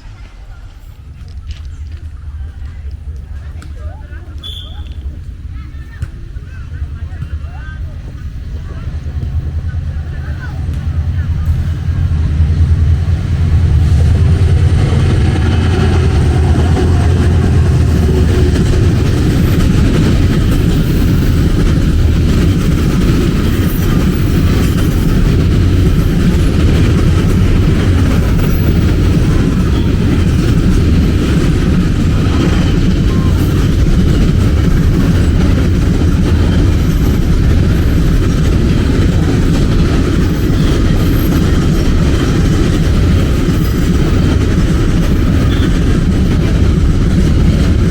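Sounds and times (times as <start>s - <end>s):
train wheels rumbling on rail: 0.0s - 47.9s.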